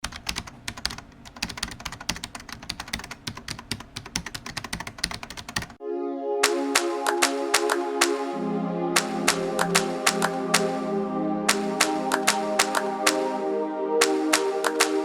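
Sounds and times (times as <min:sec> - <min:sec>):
electronic music with beats: 0:05.8 - 0:15.0
rapid irregular clicking: 0:06.4 - 0:08.2, 0:09.0 - 0:10.8, 0:11.5 - 0:13.3, 0:14.0 - 0:15.0.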